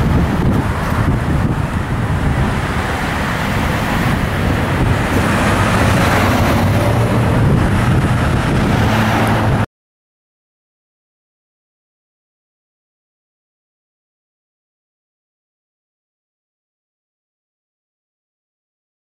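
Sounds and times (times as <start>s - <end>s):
fire engine low rumble: 0.0s - 9.7s
road noise: 0.0s - 9.7s.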